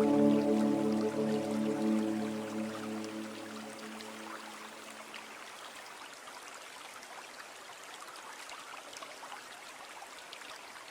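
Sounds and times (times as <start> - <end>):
music held low note: 0.0 - 5.1
water trickling and babbling: 0.0 - 10.9.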